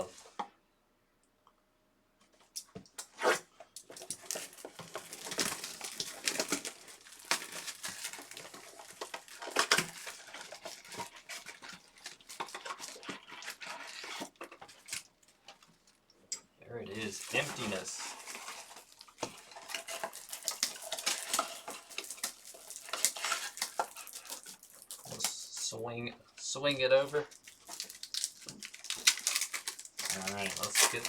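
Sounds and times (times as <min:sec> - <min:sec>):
packaging tearing and crackling: 0:03.8 - 0:16.0, 0:16.9 - 0:25.4, 0:27.3 - 0:31.0.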